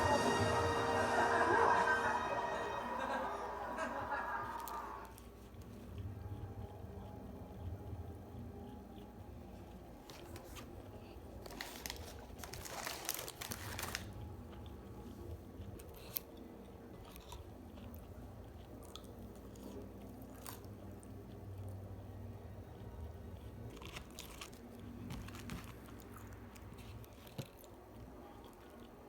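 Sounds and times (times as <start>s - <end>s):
person chewing food: 4.5s - 29.0s
crunching: 22.8s - 27.7s.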